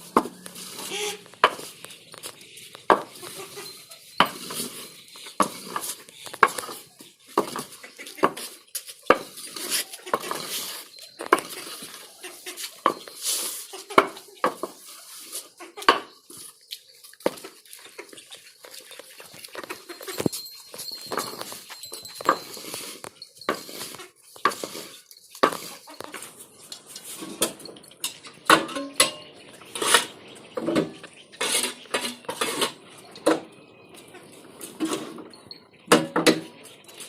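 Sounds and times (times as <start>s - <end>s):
hard objects knocking and clattering: 1.3s - 3.2s, 5.3s - 8.5s, 9.1s - 12.0s, 12.8s - 13.2s, 19.6s - 22.7s.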